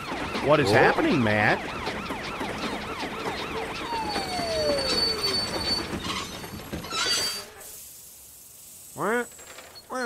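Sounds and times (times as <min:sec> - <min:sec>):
fast-wailing siren: 0:00.0 - 0:06.0
cartoon train running on rails: 0:00.0 - 0:10.0
tone sliding down in pitch: 0:03.8 - 0:05.6.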